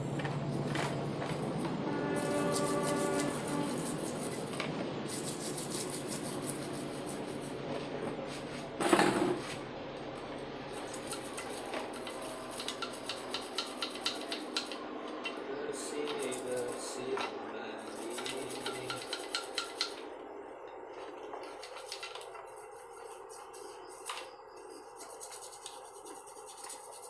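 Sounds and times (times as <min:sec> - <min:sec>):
tool rasping on metal: 0:01.9 - 0:07.5, 0:10.8 - 0:14.8, 0:15.8 - 0:20.0, 0:21.4 - 0:27.0.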